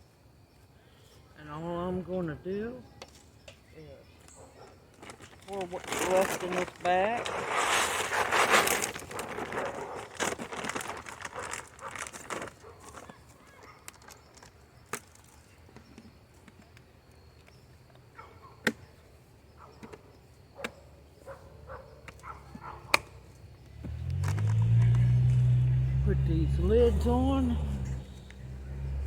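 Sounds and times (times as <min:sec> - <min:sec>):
birdseed pouring into bucket: 0:05.0 - 0:12.6.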